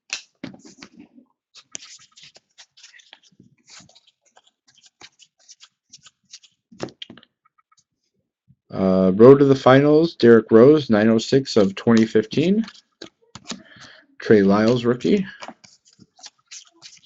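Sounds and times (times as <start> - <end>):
trading cards rustling and clicking: 0.0 - 7.3, 11.5 - 17.0.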